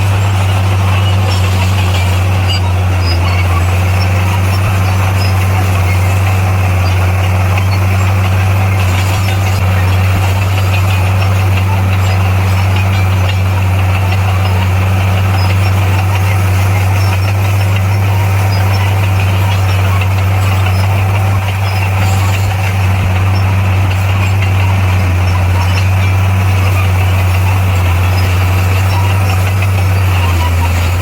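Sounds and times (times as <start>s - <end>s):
diesel engine droning: 0.0s - 31.0s
mechanical clatter: 0.0s - 31.0s.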